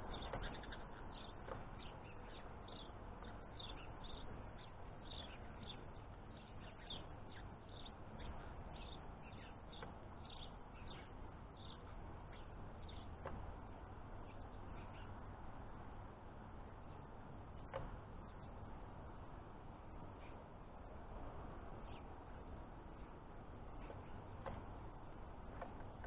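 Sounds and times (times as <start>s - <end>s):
faint bird chirps: 0.0s - 13.3s, 14.2s - 15.2s
steady background hiss: 0.0s - 26.0s.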